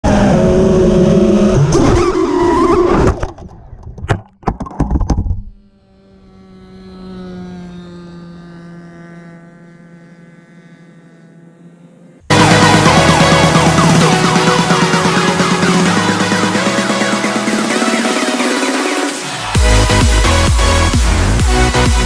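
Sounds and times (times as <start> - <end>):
model aircraft motor drone: 5.4 - 22.0.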